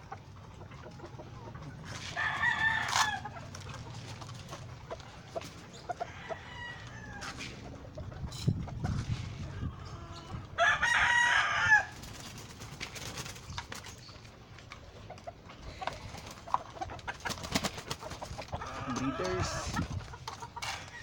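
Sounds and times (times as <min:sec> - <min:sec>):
chickens clucking: 0:00.0 - 0:21.0
rooster crowing: 0:02.2 - 0:03.3, 0:06.1 - 0:07.3, 0:10.6 - 0:11.9.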